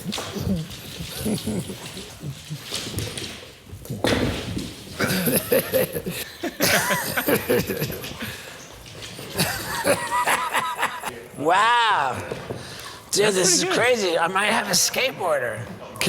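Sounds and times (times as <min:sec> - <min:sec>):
man laughing: 0:00.3 - 0:02.8, 0:05.0 - 0:08.4, 0:09.4 - 0:11.1.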